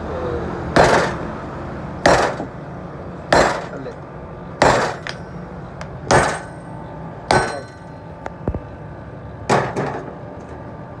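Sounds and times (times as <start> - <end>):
hammer striking metal: 0.8 - 1.3, 2.0 - 2.6, 3.3 - 3.9, 4.6 - 5.4, 6.1 - 8.0.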